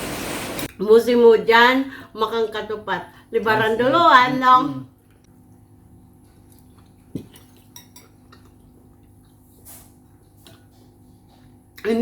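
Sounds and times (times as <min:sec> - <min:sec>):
cutlery clinking on plate: 0:07.2 - 0:08.2.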